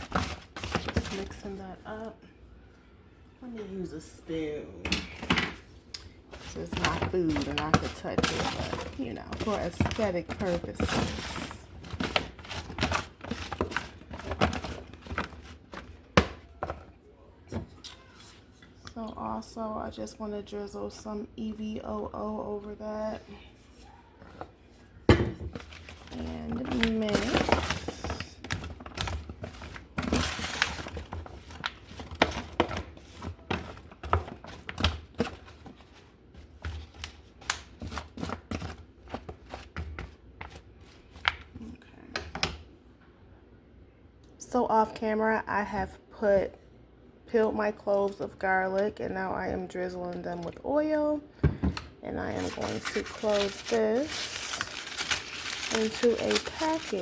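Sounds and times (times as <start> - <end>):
rustling: 52.2 - 57.0.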